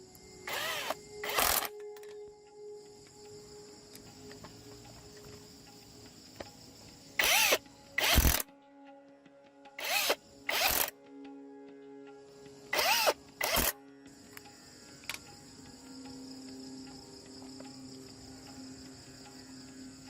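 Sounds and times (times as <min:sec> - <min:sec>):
power drill bursts: 0:00.4 - 0:01.8, 0:07.2 - 0:08.4, 0:09.8 - 0:10.9, 0:12.7 - 0:13.7.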